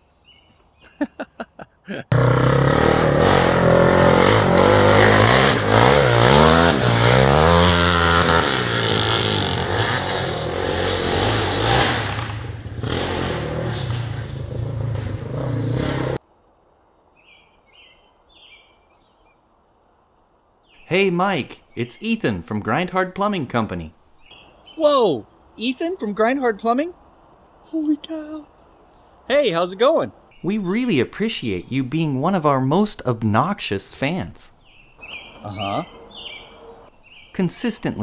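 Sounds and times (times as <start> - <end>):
engine revving: 2.1 - 16.2, 30.4 - 34.3.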